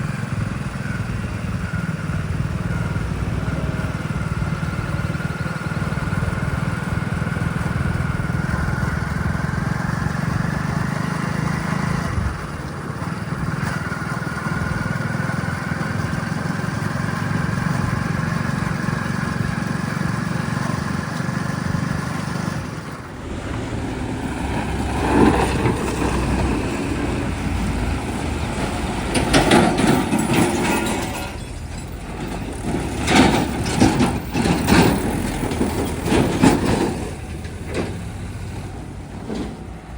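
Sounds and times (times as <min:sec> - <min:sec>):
diesel earthmoving machinery running: 0:00.0 - 0:39.9
irregular knocks and clatter: 0:11.2 - 0:39.9
rising whine: 0:22.7 - 0:28.4.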